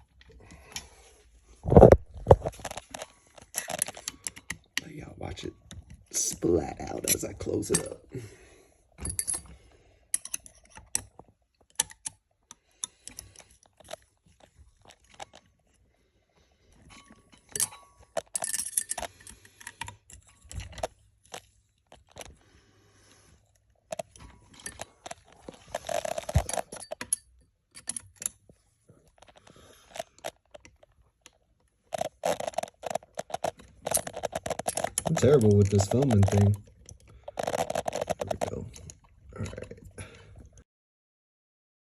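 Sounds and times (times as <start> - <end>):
hardware clattering: 6.8 - 8.0, 9.0 - 12.1, 16.8 - 20.9.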